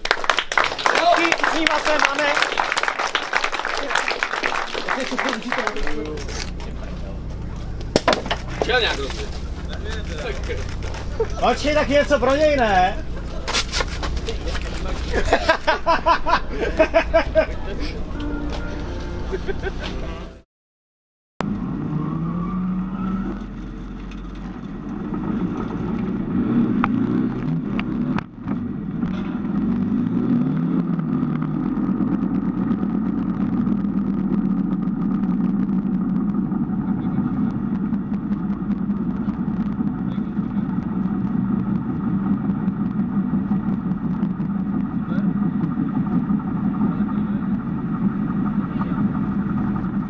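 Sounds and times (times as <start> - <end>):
diesel engine revving: 0.0 - 20.3, 21.4 - 50.0.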